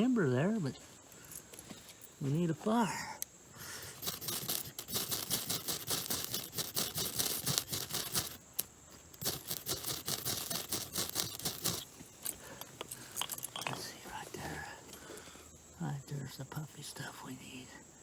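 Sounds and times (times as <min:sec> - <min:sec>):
fire-starter scraped with striker: 0:03.8 - 0:11.9.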